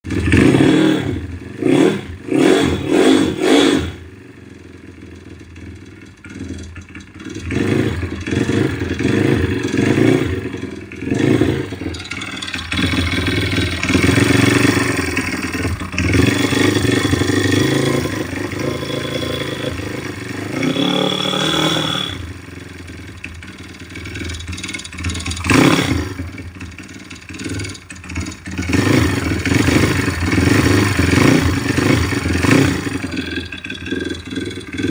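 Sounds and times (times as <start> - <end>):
single-cylinder engine revving: 0.0 - 34.9
ringing engine knock: 5.1 - 16.4.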